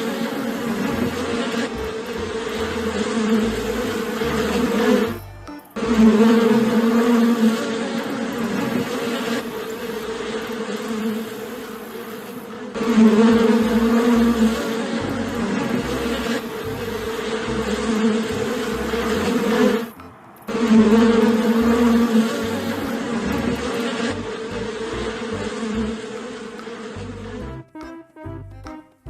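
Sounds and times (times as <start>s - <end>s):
insect buzzing: 0.0s - 27.9s.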